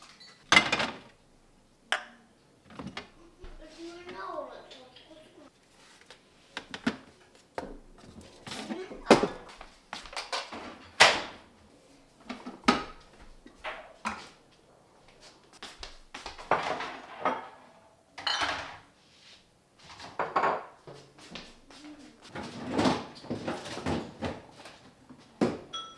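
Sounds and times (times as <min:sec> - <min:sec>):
packages rustling and sliding: 0:05.6 - 0:06.5, 0:22.2 - 0:25.0.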